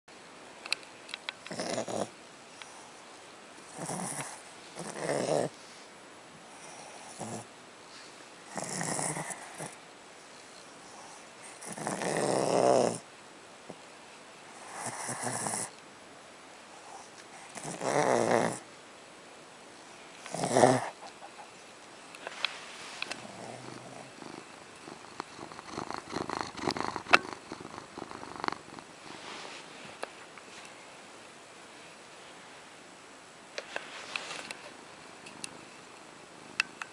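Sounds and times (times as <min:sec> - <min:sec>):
small dog grumbling: 0:01.5 - 0:02.1, 0:03.7 - 0:05.6, 0:07.1 - 0:07.5, 0:08.5 - 0:09.8, 0:11.5 - 0:13.0, 0:17.5 - 0:18.6, 0:20.3 - 0:21.5, 0:23.2 - 0:28.9.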